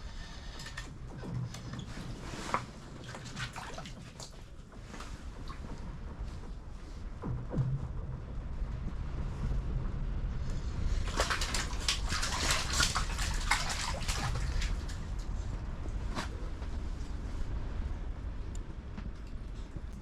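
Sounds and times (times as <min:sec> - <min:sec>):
water sloshing and splashing: 0:00.0 - 0:08.1, 0:10.5 - 0:16.6.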